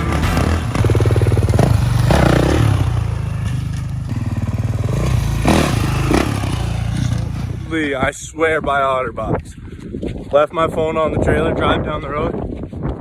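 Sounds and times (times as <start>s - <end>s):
dirt bike engine running: 0.0s - 8.2s.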